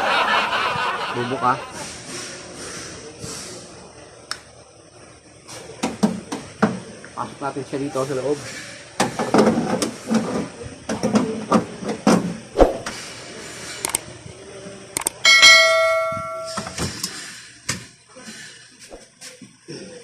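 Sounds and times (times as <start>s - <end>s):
sharp ringing metallic strike: 15.3s - 16.8s.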